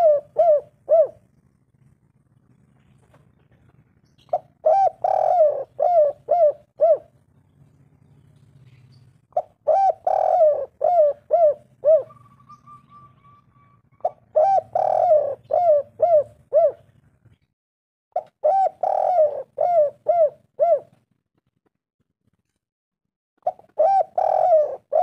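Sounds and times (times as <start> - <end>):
dove cooing: 0.0 - 1.6, 3.5 - 7.2, 8.6 - 17.0, 18.2 - 21.0, 23.4 - 25.0
faint low hum: 0.0 - 17.5.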